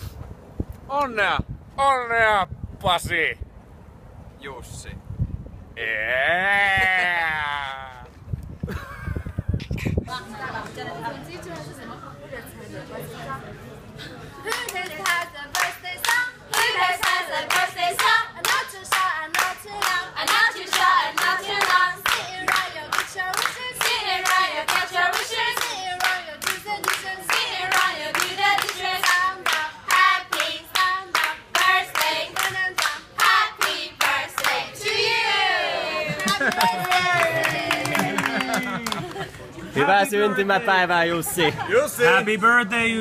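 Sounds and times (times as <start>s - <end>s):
hands clapping to a beat: 14.5s - 34.6s, 36.1s - 39.3s
women singing in unison: 14.5s - 36.2s.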